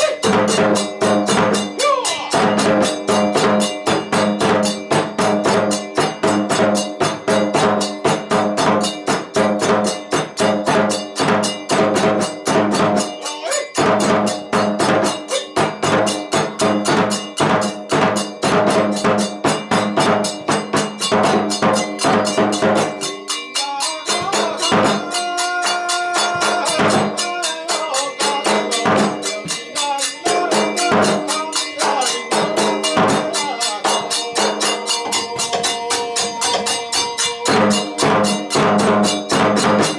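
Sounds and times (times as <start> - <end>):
clashing hand cymbals: 0.0 - 39.9
fast driving drumming: 0.0 - 39.9
flute melody: 33.3 - 39.1.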